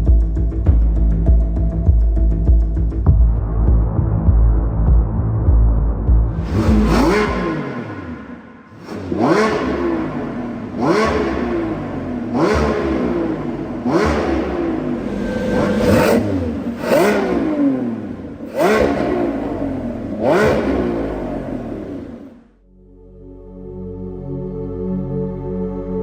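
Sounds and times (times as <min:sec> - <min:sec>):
sports car engine revving: 0:06.3 - 0:22.4.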